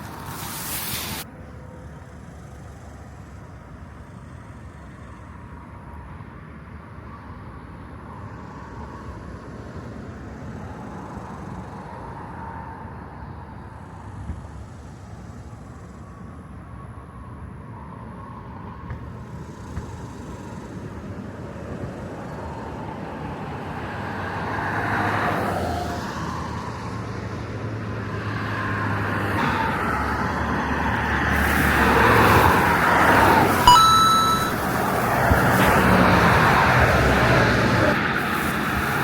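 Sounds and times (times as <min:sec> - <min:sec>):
vehicles passing by: 0:00.0 - 0:06.7, 0:21.4 - 0:39.0
brief high tone: 0:33.6 - 0:35.2.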